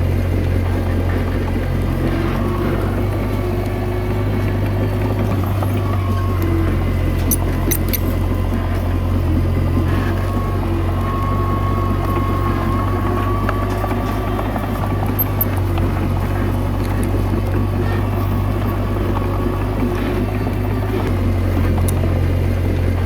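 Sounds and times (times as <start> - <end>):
bulldozer diesel engine running: 0.0 - 23.0
thin whine: 0.0 - 23.0.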